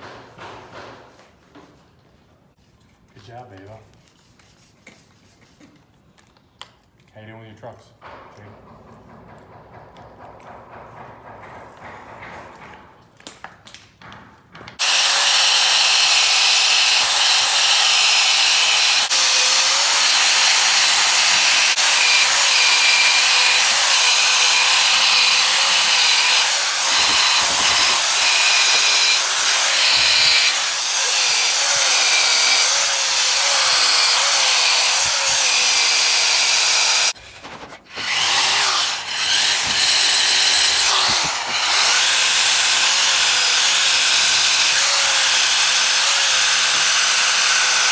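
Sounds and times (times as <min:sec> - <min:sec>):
rotary stripping tool whining: 0:14.8 - 0:47.9.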